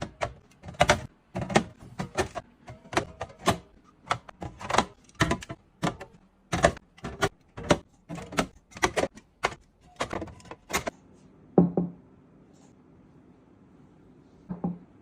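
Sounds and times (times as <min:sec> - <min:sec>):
containers clicking and knocking: 0:00.0 - 0:10.9.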